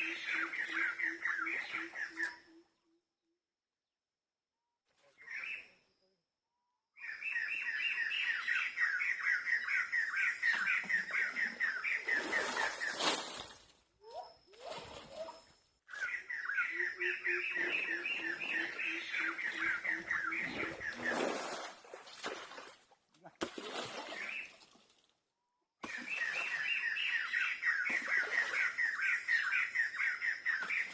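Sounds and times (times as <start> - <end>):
bird chirping: 7.0 - 21.1.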